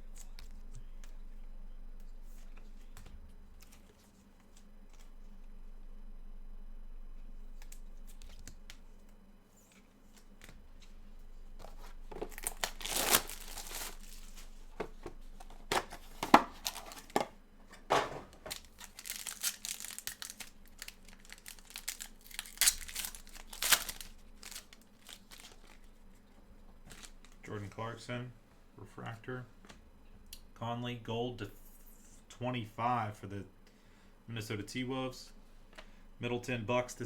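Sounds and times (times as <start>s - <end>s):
plastic wrapping torn and crinkled: 11.6s - 14.7s, 15.4s - 17.2s, 18.3s - 26.0s.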